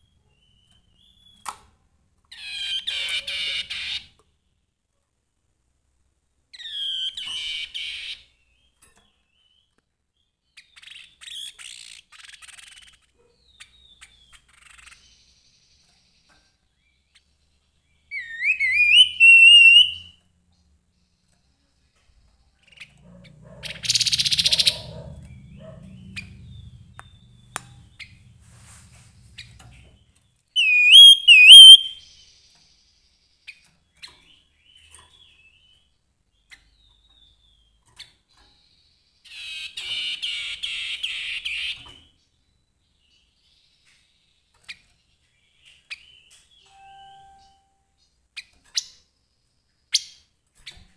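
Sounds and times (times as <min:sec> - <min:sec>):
harsh buzzy bird chatter: 0:10.7 - 0:13.2, 0:22.6 - 0:28.4
bird whistled phrases: 0:18.1 - 0:20.2, 0:30.6 - 0:32.0
noisy rustle: 0:27.8 - 0:30.1.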